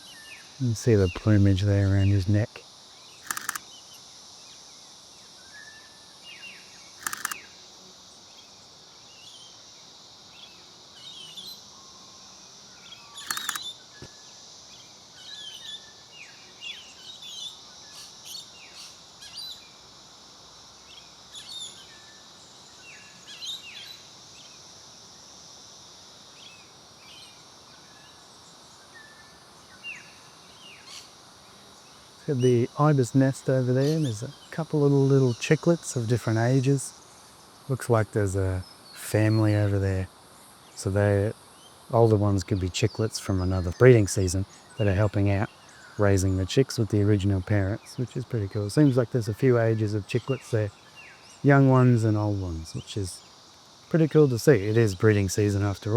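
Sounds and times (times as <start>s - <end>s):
high insect drone: 0.0s - 55.9s
short rasping sounds: 3.2s - 3.6s, 7.0s - 7.4s.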